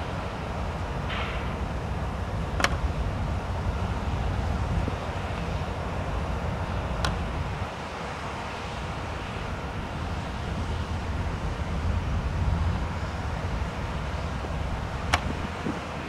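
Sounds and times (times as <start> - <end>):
low vehicle rumble: 10.3 - 16.0.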